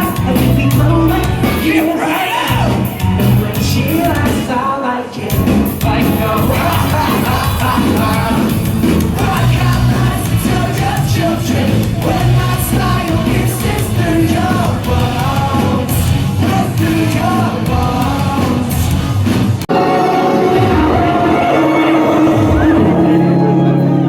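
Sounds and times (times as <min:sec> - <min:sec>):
live rock band playing: 0:00.0 - 0:04.7, 0:05.3 - 0:24.0
person singing and shouting: 0:00.0 - 0:19.0.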